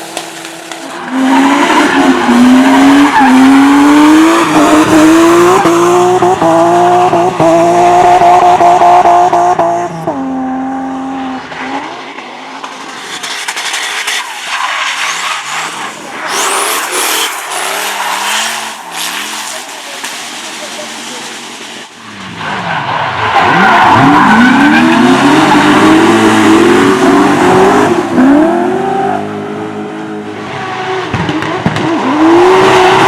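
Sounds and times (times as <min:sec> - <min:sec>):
car engine revving hard: 0:01.1 - 0:11.9, 0:15.4 - 0:19.6, 0:23.4 - 0:33.0
tyres squealing: 0:14.3 - 0:21.4.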